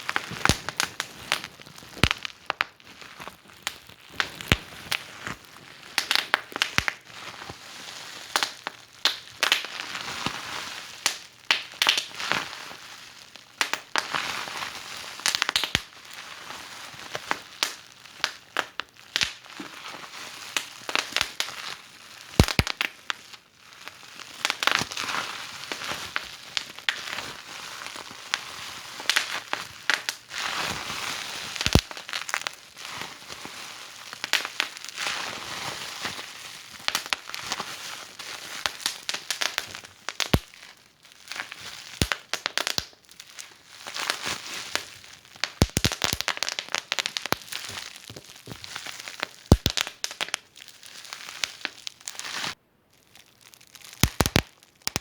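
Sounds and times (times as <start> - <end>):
wood fire crackling and popping: 0.1 - 5.4, 6.0 - 7.0, 8.3 - 9.7, 11.0 - 12.1, 13.6 - 14.0, 15.2 - 15.9, 17.6 - 19.4, 22.4 - 23.0, 29.1 - 30.2, 31.6 - 32.5, 36.9 - 37.3, 38.6 - 40.6, 41.9 - 43.0, 44.0 - 50.5, 53.8 - 55.0.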